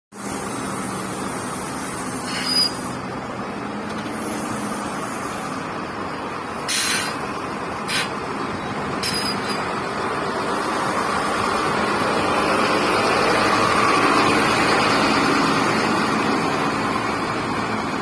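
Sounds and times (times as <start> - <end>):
air brake hisses: 0.2 - 3.0, 4.1 - 5.7, 6.7 - 7.2, 7.9 - 8.2
truck diesel engine running: 0.2 - 18.0.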